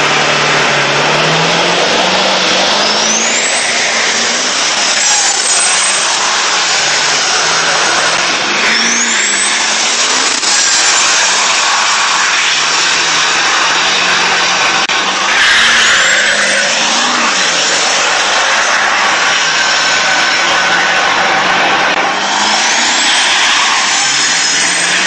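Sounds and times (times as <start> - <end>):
turbo whistle: 0.0 - 13.5, 15.0 - 20.8
diesel engine accelerating: 0.0 - 25.0.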